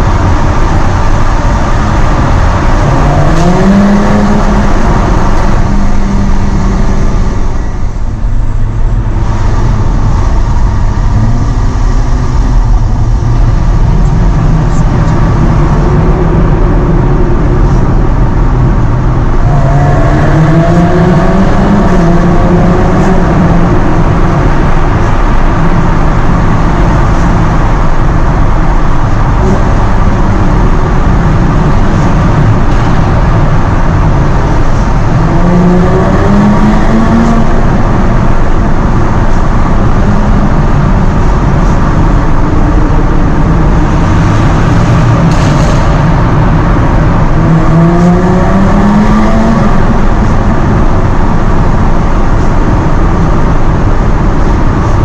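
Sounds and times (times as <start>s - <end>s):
road noise: 0.0s - 55.0s
sports car engine accelerating: 0.0s - 55.0s.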